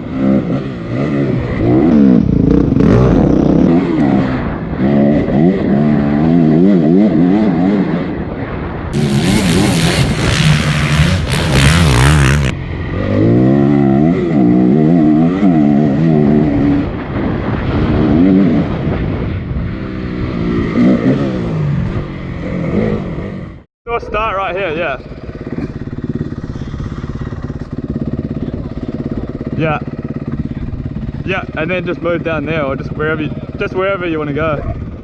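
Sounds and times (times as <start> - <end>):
loud rushing noise: 9.0 - 12.5
dirt bike engine revving: 9.0 - 12.6.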